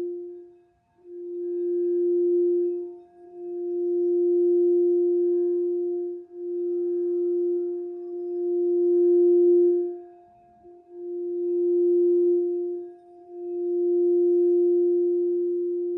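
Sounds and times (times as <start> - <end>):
singing bowl tone: 0.0 - 15.9.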